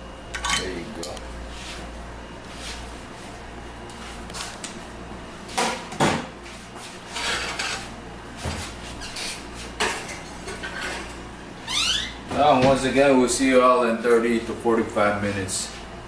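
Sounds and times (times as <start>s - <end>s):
steady low hum: 0.0s - 7.2s
dishes and cookware clinking: 0.4s - 1.2s.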